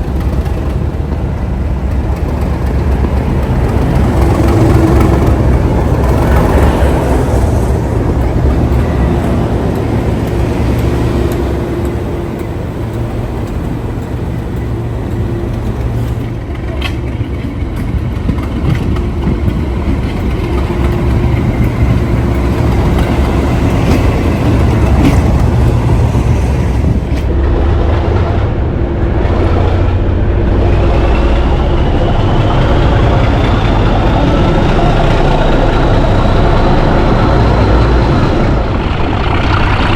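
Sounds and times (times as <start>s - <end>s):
locomotive diesel engine throbbing: 0.0s - 39.9s.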